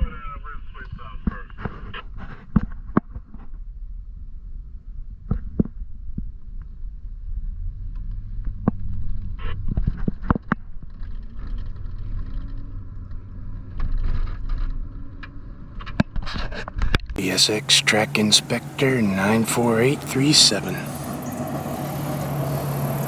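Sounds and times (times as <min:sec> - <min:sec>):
vehicle engine rumbling: 0:17.2 - 0:23.0.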